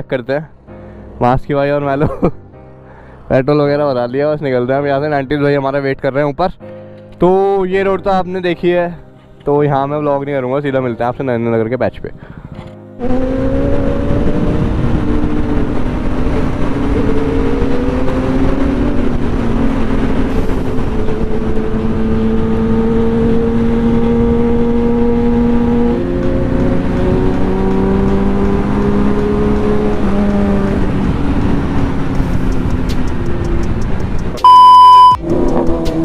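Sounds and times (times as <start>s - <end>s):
wind rushing over microphone: 12.2s - 34.4s
motorcycle engine: 13.0s - 36.0s.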